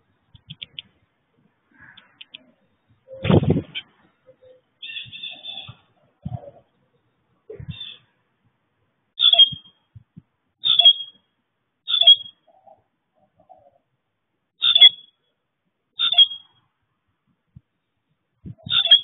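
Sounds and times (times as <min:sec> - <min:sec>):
bird calling: 0:01.7 - 0:08.2, 0:09.2 - 0:09.7, 0:10.6 - 0:11.2, 0:11.9 - 0:13.9, 0:14.6 - 0:15.2, 0:16.0 - 0:16.5, 0:18.6 - 0:19.0.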